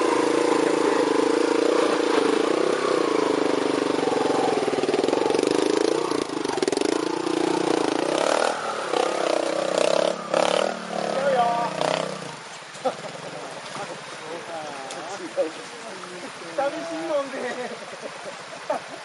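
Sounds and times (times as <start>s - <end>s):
motorcycle engine at low revs: 0.0s - 13.9s.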